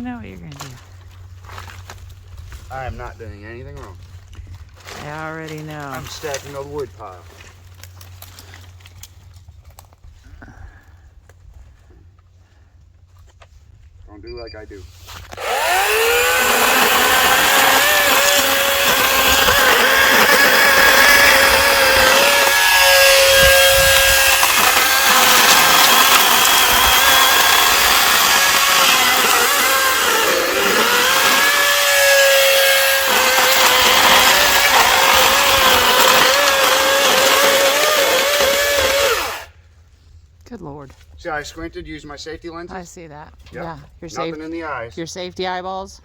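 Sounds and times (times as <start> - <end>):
electric chainsaw cutting wood: 15.3 - 39.5.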